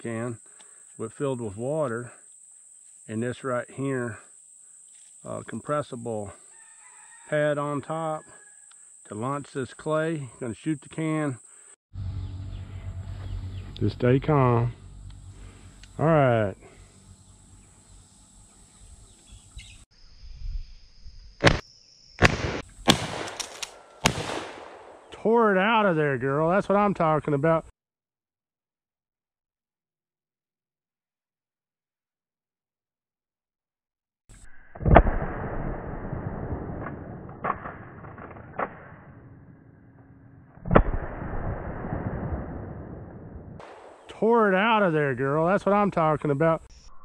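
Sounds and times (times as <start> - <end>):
pump shotgun firing: 22.2 - 25.1, 40.6 - 42.5, 43.6 - 44.1.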